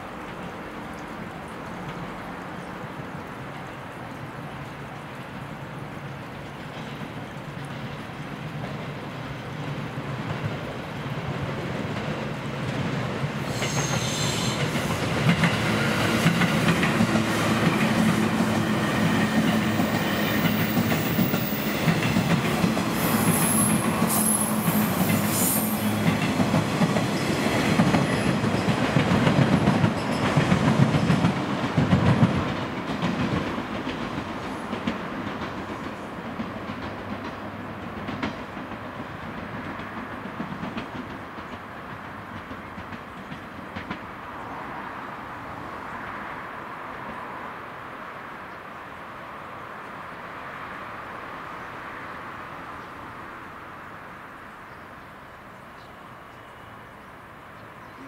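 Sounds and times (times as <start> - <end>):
train wheels clattering: 11.8 - 44.2
high wheel squeal: 13.5 - 15.0, 22.9 - 26.2.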